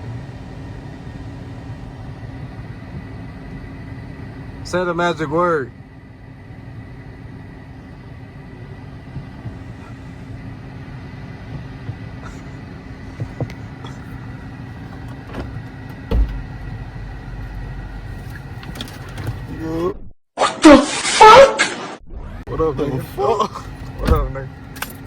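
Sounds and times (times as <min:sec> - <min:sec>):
car engine idling: 0:00.0 - 0:19.8, 0:22.5 - 0:25.0
short low thump: 0:15.3 - 0:16.6.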